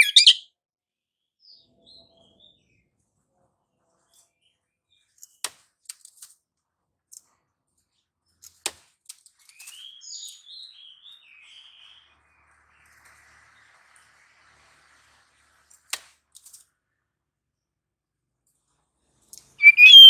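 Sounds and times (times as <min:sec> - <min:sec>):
bird chirping notes: 0:00.0 - 0:00.4, 0:19.6 - 0:20.0
bird sharp clicks: 0:00.0 - 0:00.4, 0:19.6 - 0:20.0.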